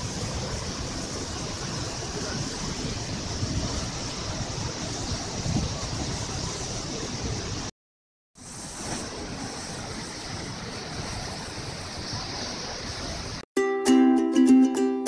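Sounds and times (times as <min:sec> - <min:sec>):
waterfall rushing: 0:00.0 - 0:07.7
wind rumble on microphone: 0:00.0 - 0:07.7.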